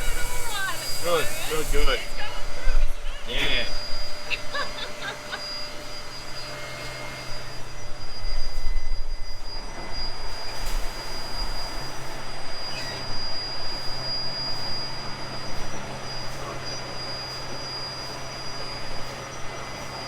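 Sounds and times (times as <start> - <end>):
rumbling hiss: 0.0 - 5.1
heavy machinery drone: 0.0 - 20.0
high whine: 0.0 - 20.0.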